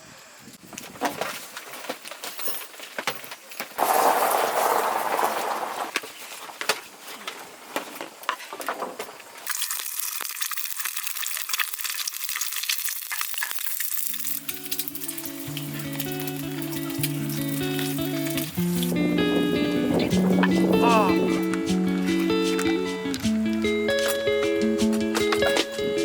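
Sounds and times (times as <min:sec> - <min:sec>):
crackling and sizzling pops: 0:03.7 - 0:06.1, 0:08.7 - 0:20.6
background music with held notes: 0:14.2 - 0:26.0.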